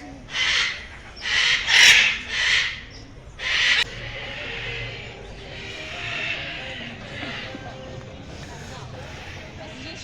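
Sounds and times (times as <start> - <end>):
parrot squawking: 0.3 - 7.7.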